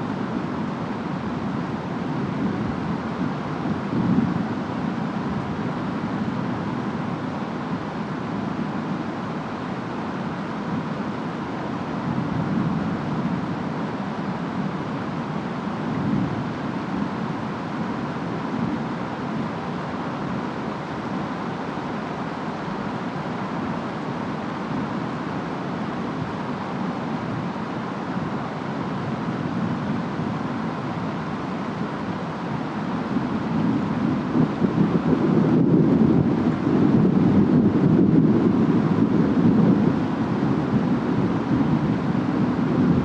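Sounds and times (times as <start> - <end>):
steady rain: 0.0 - 43.0
wind rumble: 22.0 - 43.0.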